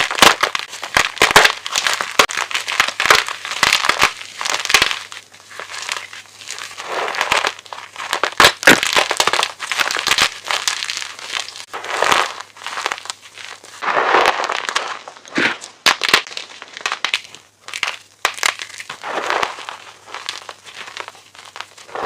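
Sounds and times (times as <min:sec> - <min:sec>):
chalk crunching and crackling: 0:00.0 - 0:22.0.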